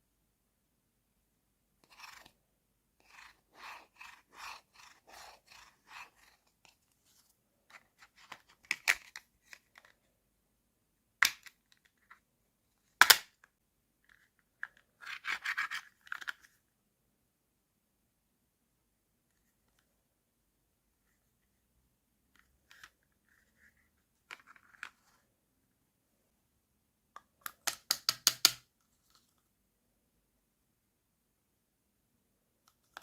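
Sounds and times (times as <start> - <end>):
scratchy rubbing on plastic: 1.8 - 2.4, 3.0 - 8.6.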